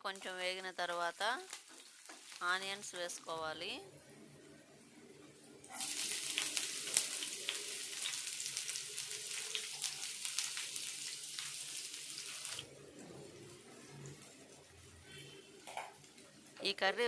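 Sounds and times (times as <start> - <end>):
onions sizzling in a frying pan: 0.1 - 3.4, 5.7 - 12.7.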